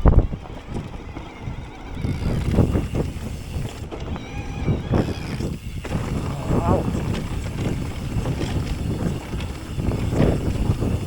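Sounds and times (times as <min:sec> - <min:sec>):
bike tyres rumbling on trail: 0:00.0 - 0:11.0
wind buffeting microphone: 0:00.0 - 0:11.0
bike knocks and rattles: 0:04.8 - 0:11.0.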